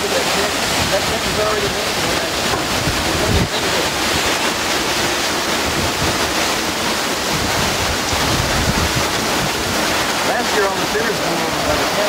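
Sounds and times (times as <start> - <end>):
strong wind rushing: 0.0 - 10.8
wind buffeting microphone: 0.0 - 12.0.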